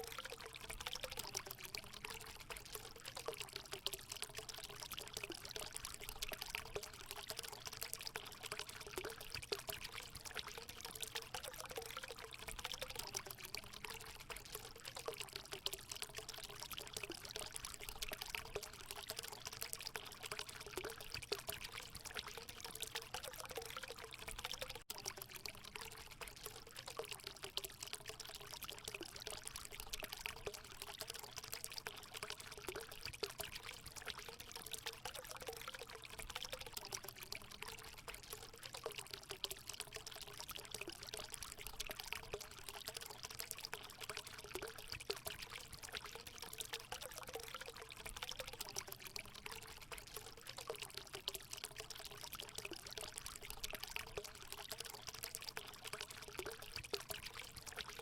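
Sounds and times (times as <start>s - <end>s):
water pouring into a pool: 0.0s - 58.0s.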